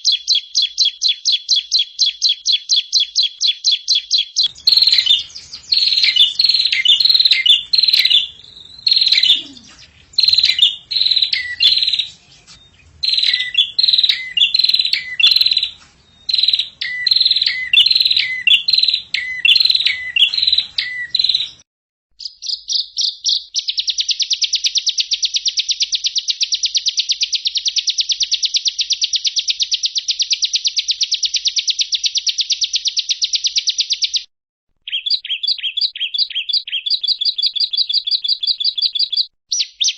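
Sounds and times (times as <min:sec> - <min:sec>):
bird chirping phrases: 0:00.0 - 0:21.6, 0:22.2 - 0:26.7, 0:34.9 - 0:39.9
fast bird trill: 0:00.1 - 0:21.6.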